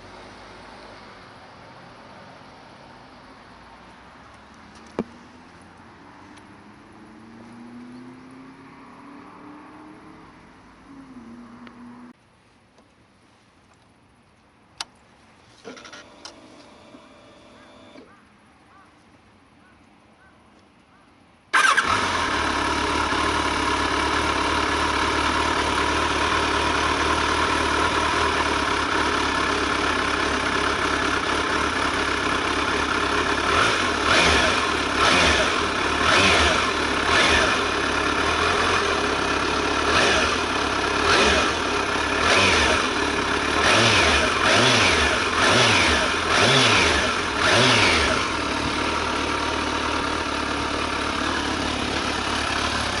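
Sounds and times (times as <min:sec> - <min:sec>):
engine throttle blips: 0:21.6 - 0:32.4, 0:33.4 - 0:53.0
motorcycle engine idling: 0:21.6 - 0:53.0.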